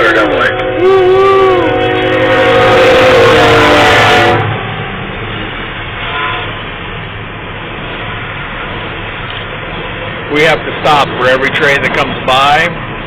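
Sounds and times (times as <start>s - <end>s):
train horn: 0.0s - 4.8s, 6.0s - 6.7s
train rumbling past: 0.0s - 13.0s.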